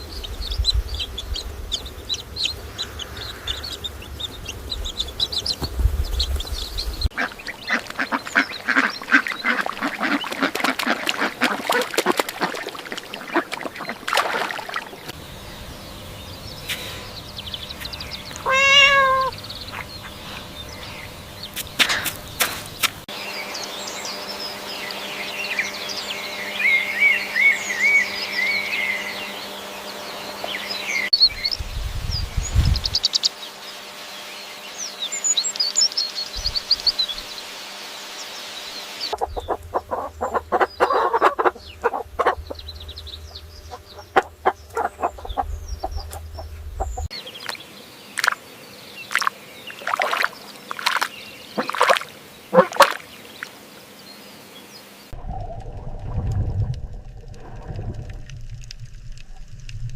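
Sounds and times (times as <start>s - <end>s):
farmyard fowl chirping and clucking: 0.0s - 22.9s, 38.7s - 47.6s, 50.9s - 53.1s.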